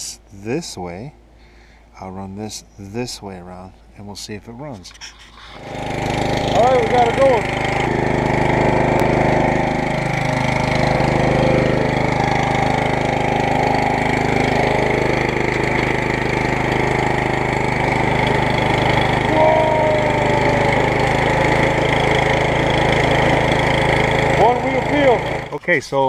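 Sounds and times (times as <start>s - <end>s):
lawn tractor engine running: 5.6s - 26.0s.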